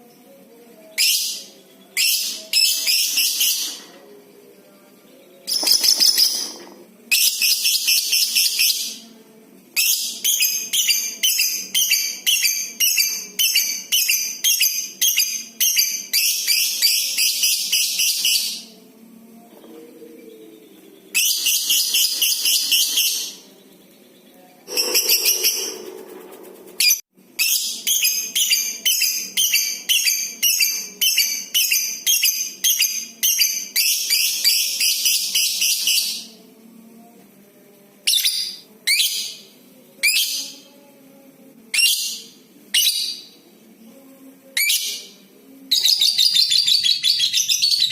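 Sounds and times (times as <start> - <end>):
lovebird shrill chattering: 24.7 - 25.9.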